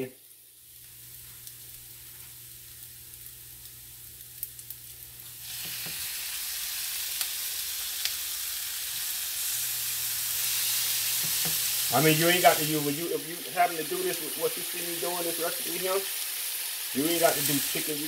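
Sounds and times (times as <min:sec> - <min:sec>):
meat sizzling loudly: 0:00.0 - 0:18.0
onions sizzling in a pan: 0:00.0 - 0:18.0.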